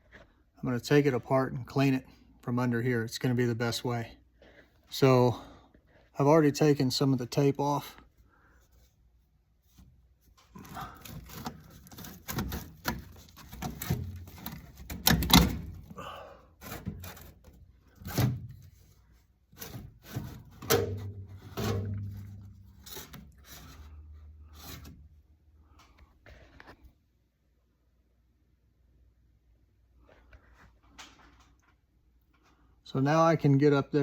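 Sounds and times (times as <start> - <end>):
metal duct knocking and clanking: 11.0 - 16.0, 19.6 - 23.7.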